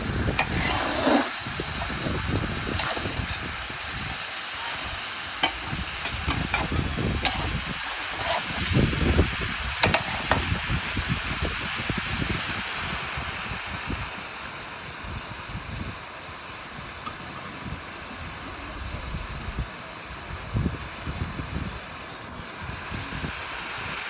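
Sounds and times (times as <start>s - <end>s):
meat sizzling in a pan: 0.0s - 24.0s.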